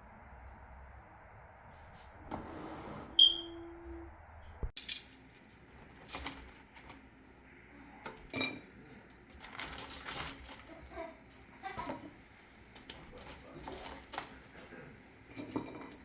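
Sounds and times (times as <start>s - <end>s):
dishes and utensils clinking: 8.0s - 16.0s.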